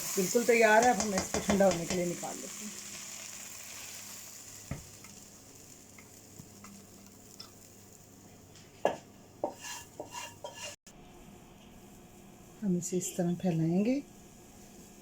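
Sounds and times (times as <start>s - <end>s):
food sizzling in frying pan: 0.0s - 10.8s
spoon stirring and scraping: 9.4s - 10.8s.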